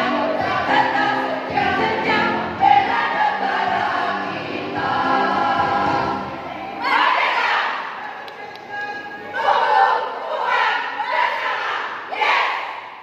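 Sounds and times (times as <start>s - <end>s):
choir singing in parts: 0.0s - 8.3s, 9.2s - 13.0s.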